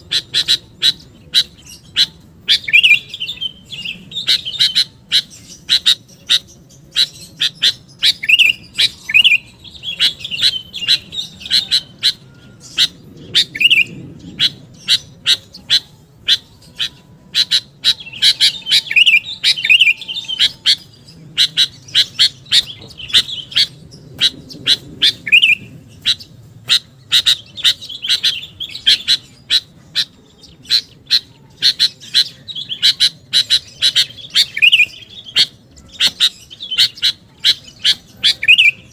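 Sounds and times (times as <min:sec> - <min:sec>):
bird bubbly whistled phrases: 0:00.1 - 0:38.9.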